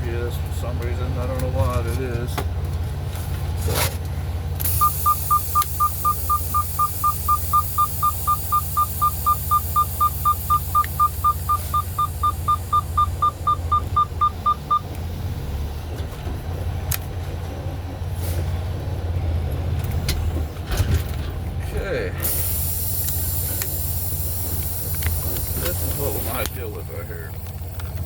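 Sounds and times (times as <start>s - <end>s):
truck engine rumbling: 0.0s - 28.0s
rapid electronic beeping: 4.7s - 14.8s.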